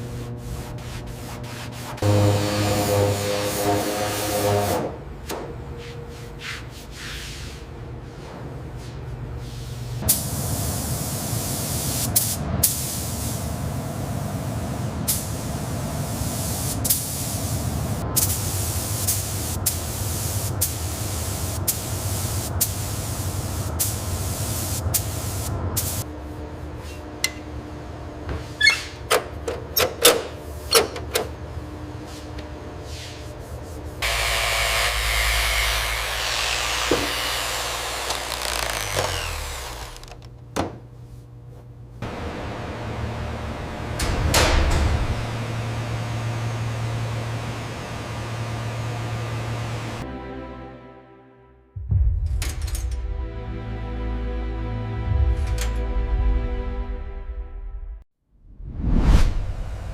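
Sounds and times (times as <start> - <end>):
workshop tool running: 0.0 - 5.7, 34.0 - 40.9, 42.0 - 50.0.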